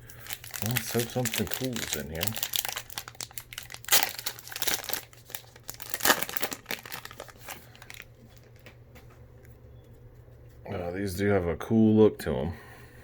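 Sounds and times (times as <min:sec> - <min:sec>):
wrapper ripping: 0:00.0 - 0:08.7
wrapper crinkling: 0:00.0 - 0:08.8.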